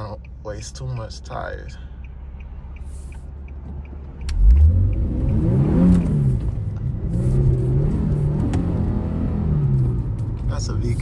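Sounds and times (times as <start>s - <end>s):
car engine revving: 2.9s - 11.0s.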